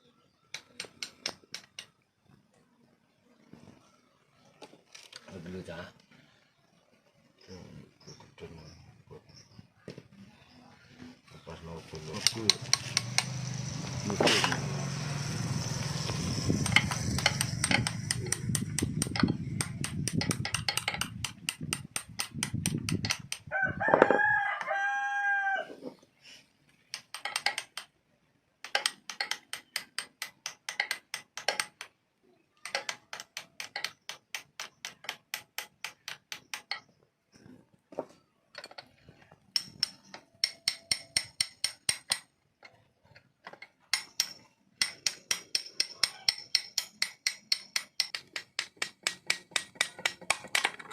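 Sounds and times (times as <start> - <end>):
sharp tapping strikes: 12.0 - 23.5, 28.6 - 32.0, 39.5 - 42.3, 43.9 - 50.9
rooster crowing: 23.5 - 26.0.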